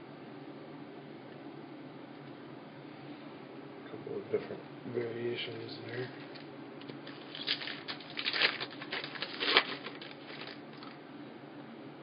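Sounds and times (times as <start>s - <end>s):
trading cards rustling and flicking: 6.1s - 11.0s.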